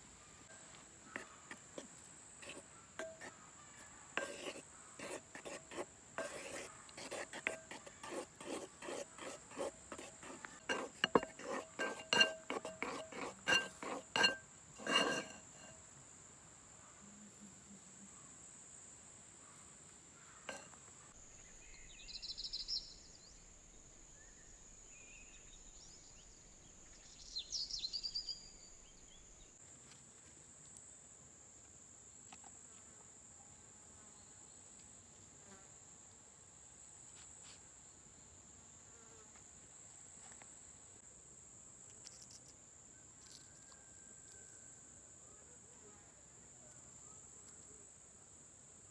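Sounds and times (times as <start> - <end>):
dishes clinking: 2.4 - 3.3, 9.2 - 15.8.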